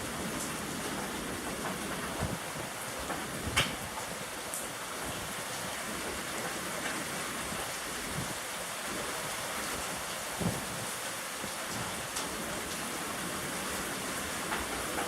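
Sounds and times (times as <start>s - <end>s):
steady rain falling: 0.0s - 15.0s
dull low thump: 10.4s - 10.9s.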